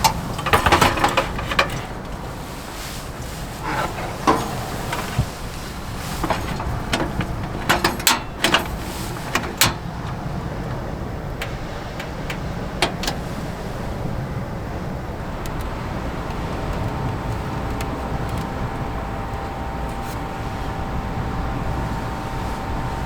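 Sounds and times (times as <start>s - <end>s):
sharp clicks and knocks: 0.0s - 2.4s, 3.6s - 13.2s
strong wind rumbling: 0.0s - 23.0s.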